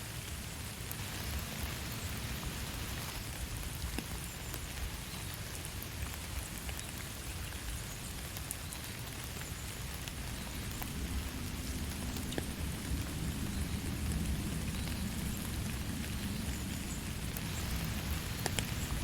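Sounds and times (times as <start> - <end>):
steady rain falling: 0.0 - 19.0
raindrop ticks: 3.2 - 19.0
low rumble: 10.1 - 19.0.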